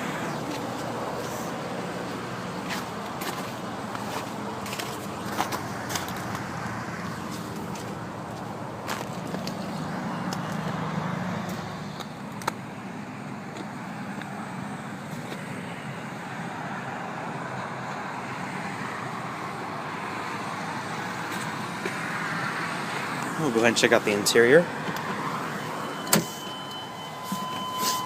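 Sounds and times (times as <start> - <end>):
van engine idling: 0.0 - 10.3.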